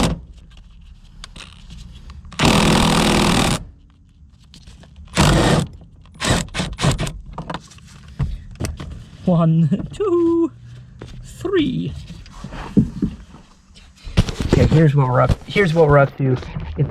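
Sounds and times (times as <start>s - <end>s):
cordless power tool bursts: 2.4s - 3.6s, 5.1s - 7.1s.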